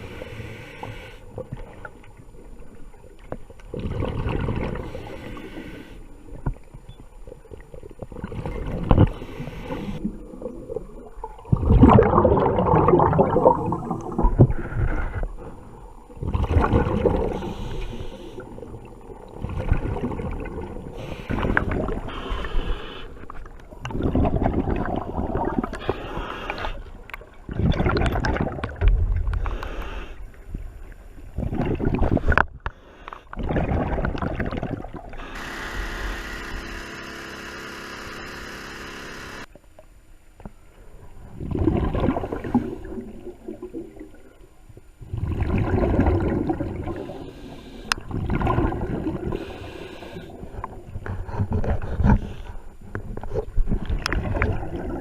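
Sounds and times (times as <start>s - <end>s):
diver breathing through regulator: 0.0s - 1.4s, 4.7s - 6.1s, 9.0s - 10.1s, 17.1s - 18.6s, 21.0s - 23.4s, 25.8s - 27.0s, 29.4s - 30.3s, 46.9s - 48.1s, 49.2s - 52.8s
bubbles gurgling: 3.7s - 5.1s, 7.4s - 9.2s, 10.0s - 14.7s, 15.8s - 17.8s, 18.4s - 22.1s, 23.7s - 25.9s, 27.2s - 29.4s, 31.4s - 32.5s, 33.4s - 35.3s, 41.3s - 44.4s, 45.0s - 47.3s, 47.9s - 49.6s, 53.6s - 55.0s.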